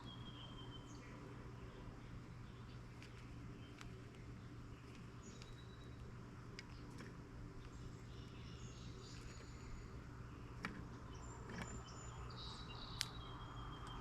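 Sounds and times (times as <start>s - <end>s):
bird chirps: 0.0s - 2.8s, 3.5s - 6.1s, 7.6s - 14.0s
low background hum: 0.0s - 14.0s
sharp clicks: 12.9s - 13.2s.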